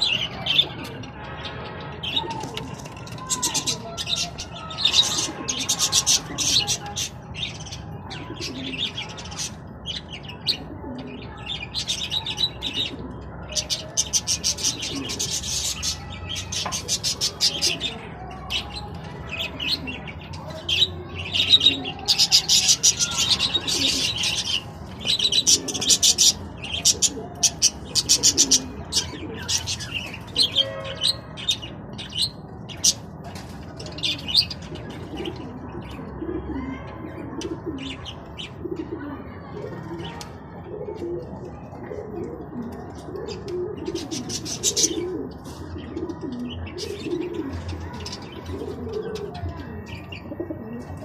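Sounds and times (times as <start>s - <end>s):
budgerigars chirping and chattering: 3.2s - 33.1s, 43.3s - 50.6s.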